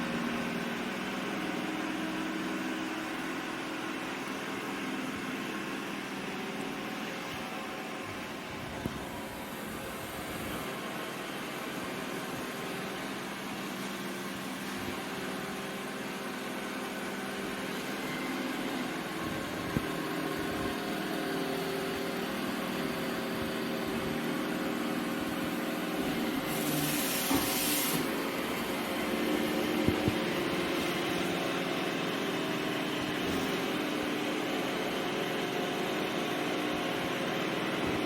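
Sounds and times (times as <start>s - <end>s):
robot vacuum running: 18.1s - 38.0s.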